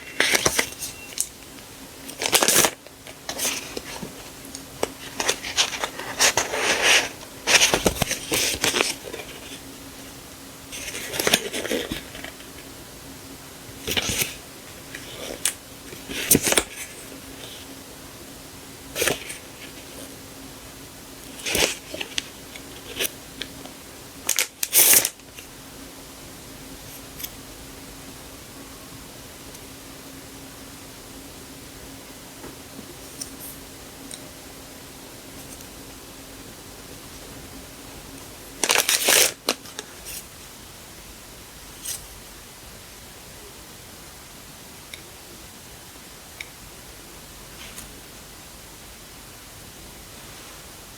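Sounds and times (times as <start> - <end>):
packaging crinkling and rustling: 0.0 - 9.6, 21.2 - 25.5, 38.2 - 40.2
faint steady hum: 0.0 - 50.9.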